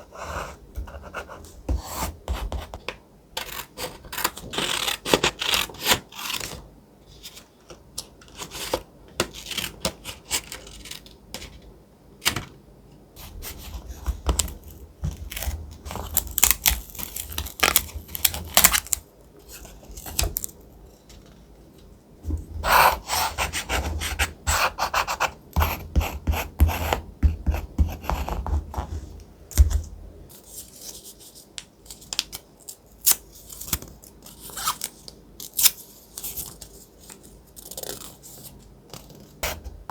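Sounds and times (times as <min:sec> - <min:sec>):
scissors snipping paper: 0:15.3 - 0:19.0.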